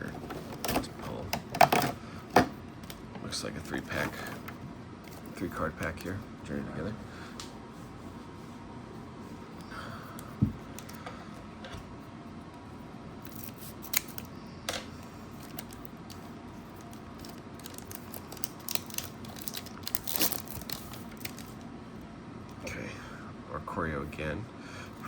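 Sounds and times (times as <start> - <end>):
foil wrapper crinkling: 13.2 - 14.3, 15.3 - 21.7.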